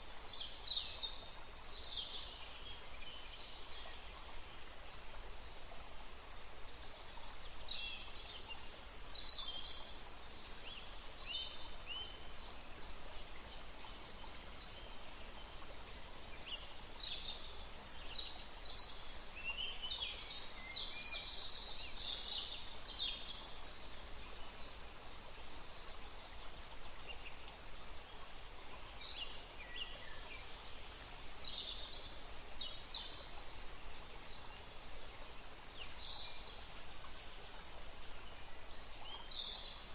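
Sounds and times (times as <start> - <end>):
songbirds chirping: 0.0 - 39.9
steady background hiss: 0.0 - 39.9.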